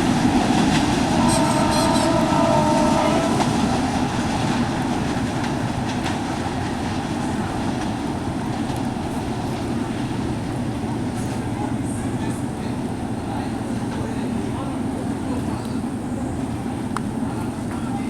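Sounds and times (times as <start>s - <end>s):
train rumbling on rails: 0.0s - 18.0s
clickety-clack of wheels: 3.4s - 10.2s.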